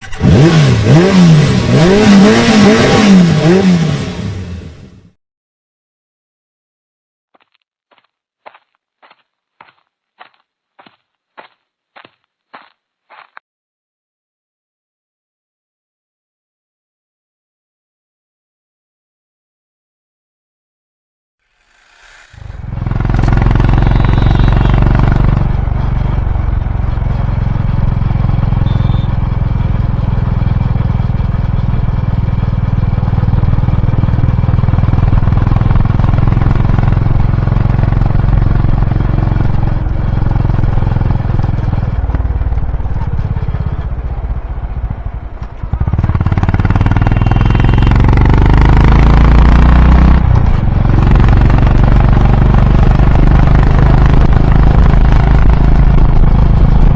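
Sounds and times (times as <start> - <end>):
motorcycle engine exhaust: 21.5 - 56.9.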